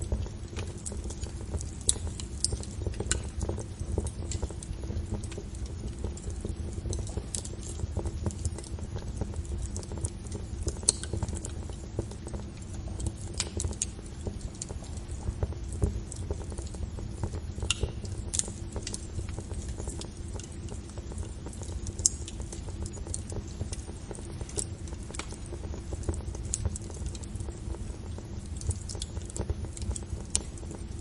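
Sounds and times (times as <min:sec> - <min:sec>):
fire crackling: 0:00.0 - 0:31.0.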